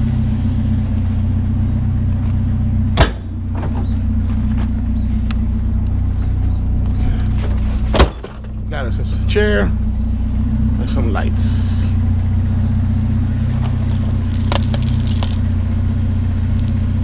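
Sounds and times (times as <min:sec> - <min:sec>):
vehicle engine idling: 0:00.0 - 0:17.0
sharp bang: 0:03.0 - 0:03.3.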